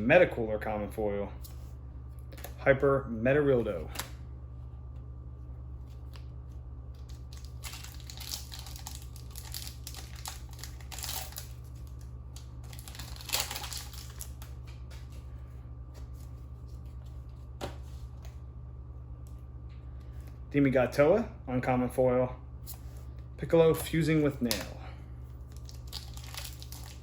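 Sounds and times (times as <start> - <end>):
low electrical hum: 0.0 - 27.0
cards rustling and crinkling: 5.7 - 18.4, 22.7 - 27.0.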